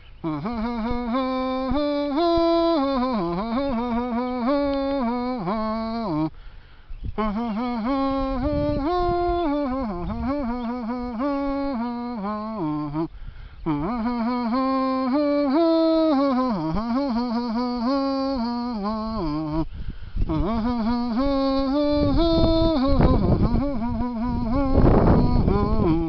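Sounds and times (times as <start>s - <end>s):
person humming: 0.0s - 6.5s, 7.1s - 26.0s
wind buffeting microphone: 6.8s - 12.1s, 17.7s - 26.0s.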